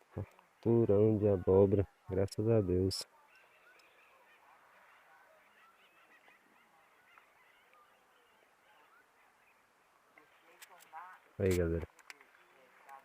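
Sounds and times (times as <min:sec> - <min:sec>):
faint bird chirps: 0:01.8 - 0:10.7.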